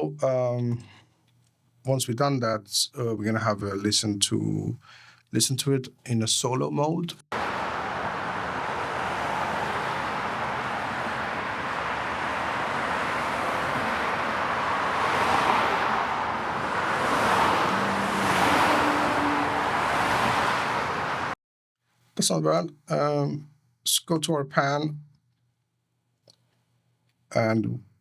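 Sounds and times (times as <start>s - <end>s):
cars passing by: 7.3s - 21.4s.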